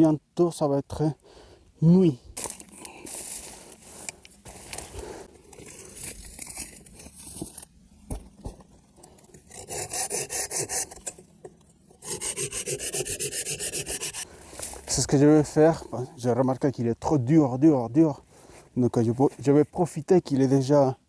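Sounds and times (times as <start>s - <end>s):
hand saw cutting branch: 9.3s - 11.2s, 12.0s - 14.3s.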